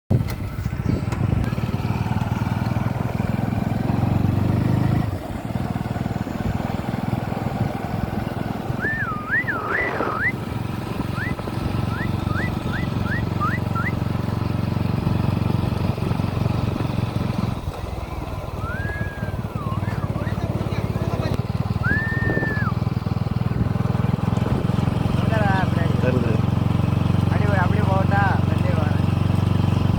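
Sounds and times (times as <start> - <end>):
motorcycle engine running: 0.1 - 29.9
whistled notes: 8.6 - 14.0, 18.5 - 20.3, 21.7 - 22.9.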